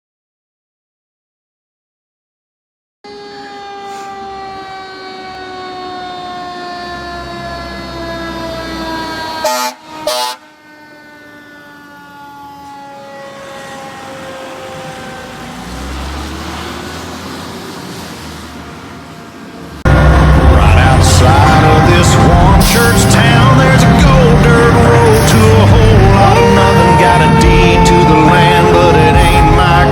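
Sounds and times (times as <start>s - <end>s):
fire engine siren wailing: 3.0s - 29.9s
diesel engine rumbling: 3.2s - 29.9s
air horn blasts: 9.1s - 10.6s, 19.9s - 29.9s.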